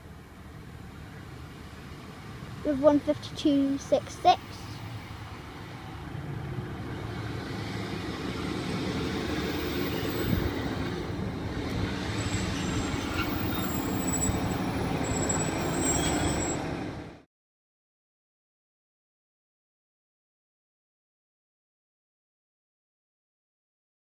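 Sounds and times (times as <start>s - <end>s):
diesel engine rumble: 0.0s - 17.2s
train wheels on rails: 6.9s - 17.2s.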